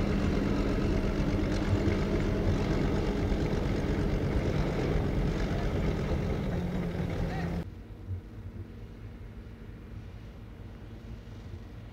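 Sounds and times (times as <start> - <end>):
tractor engine running: 0.0 - 7.6.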